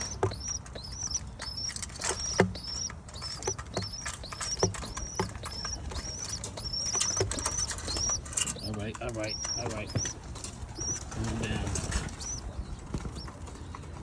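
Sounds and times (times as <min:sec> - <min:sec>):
pigeon squabs peeping: 0:00.0 - 0:14.0.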